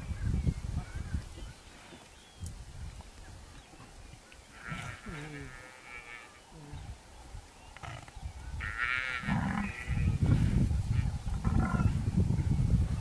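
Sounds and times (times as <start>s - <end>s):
animal low rumbling calls: 7.7s - 13.0s.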